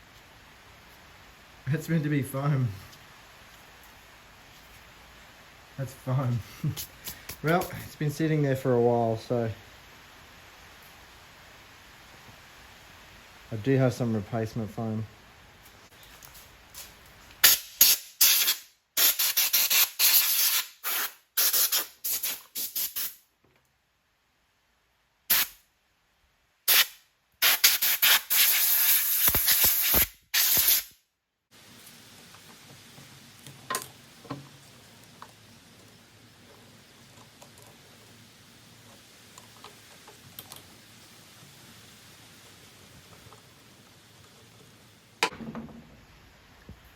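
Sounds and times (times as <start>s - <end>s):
pressurised spray hissing: 16.8s - 23.2s, 25.3s - 25.6s, 26.7s - 31.0s.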